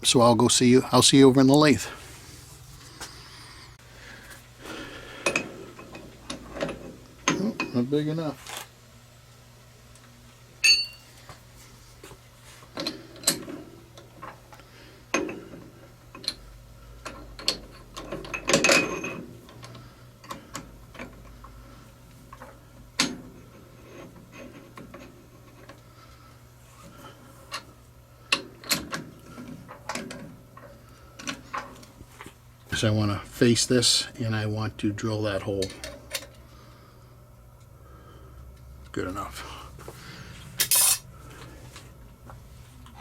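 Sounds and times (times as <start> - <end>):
steady low hum: 0.0 - 43.0
metal parts clattering: 40.6 - 41.0
metal tools clinking: 40.6 - 41.0.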